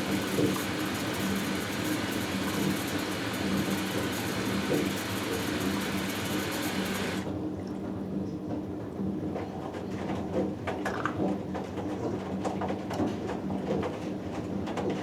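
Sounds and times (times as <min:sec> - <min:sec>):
water rushing into washing machine: 0:00.0 - 0:07.4.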